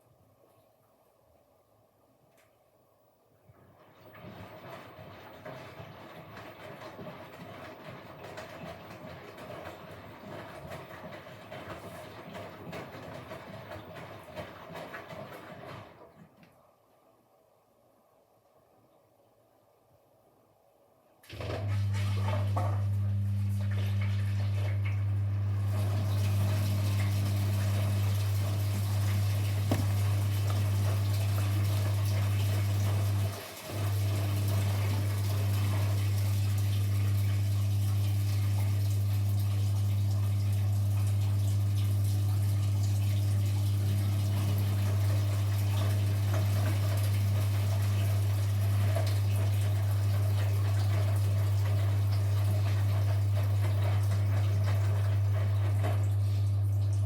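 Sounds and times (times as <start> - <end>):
washing machine running: 3.4 - 16.8, 21.2 - 57.0.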